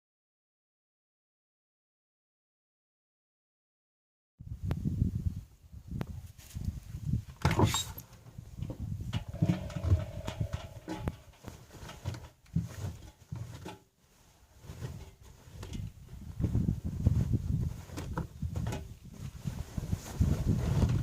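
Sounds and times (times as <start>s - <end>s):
washing machine whine: 9.2s - 11.3s.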